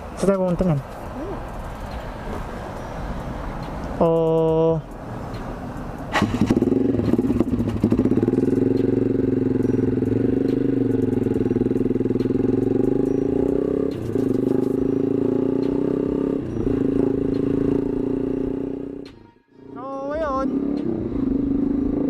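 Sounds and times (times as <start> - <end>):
motorcycle engine running: 6.1 - 19.1, 19.7 - 22.0.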